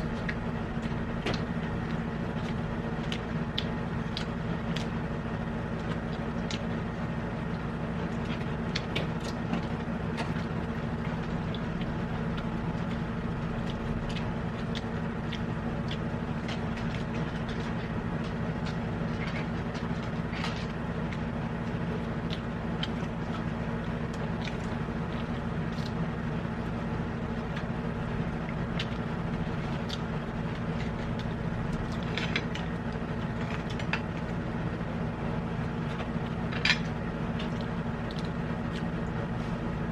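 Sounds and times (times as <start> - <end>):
steady machine hum: 0.0 - 39.9
eating and utensil clicks: 13.6 - 17.9, 35.9 - 38.9.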